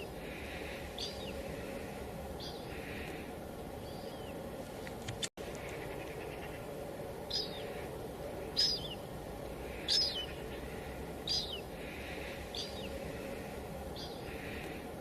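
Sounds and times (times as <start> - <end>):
bird high call: 0.0 - 1.8, 7.3 - 13.4
light drizzle hiss: 0.0 - 15.0.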